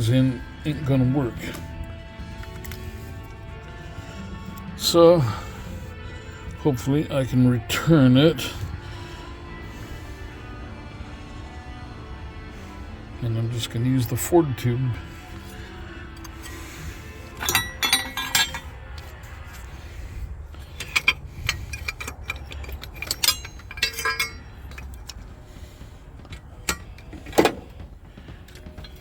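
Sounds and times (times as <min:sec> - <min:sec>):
metal parts clinking: 0:17.3 - 0:19.7, 0:20.5 - 0:25.3.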